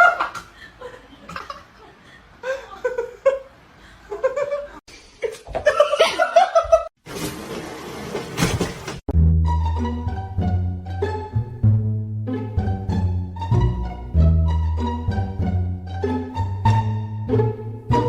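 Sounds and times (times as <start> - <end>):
people laughing: 0.0 - 6.9.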